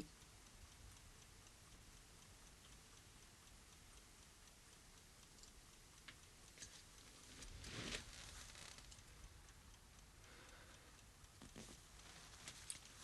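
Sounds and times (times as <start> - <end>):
faint ticking: 0.0 - 13.0
soft rustle: 6.0 - 9.3, 10.9 - 13.0.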